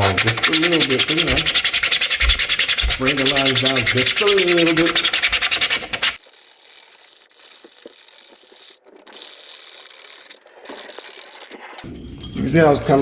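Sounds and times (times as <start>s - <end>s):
scratchy hiss of handling: 0.0s - 6.2s
sandpaper rubbing plastic: 0.0s - 11.9s.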